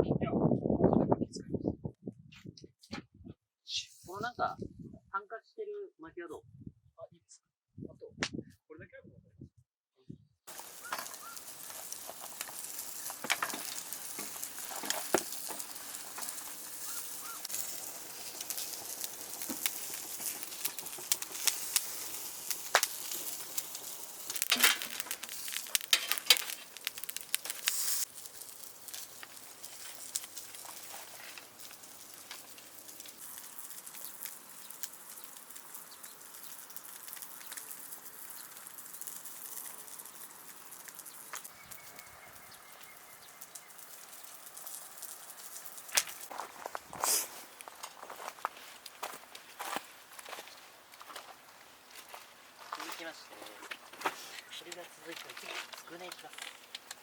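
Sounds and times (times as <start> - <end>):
fire popping sharply: 10.5 - 50.5, 52.7 - 57.0
bonfire crackling and hissing: 10.5 - 57.0.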